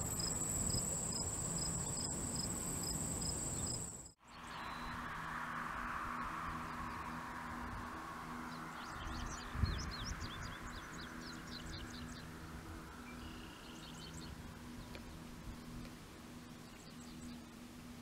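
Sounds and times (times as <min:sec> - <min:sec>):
small birds chirping: 0:00.0 - 0:05.0
insect drone: 0:00.0 - 0:18.0
low steady hum: 0:00.0 - 0:18.0.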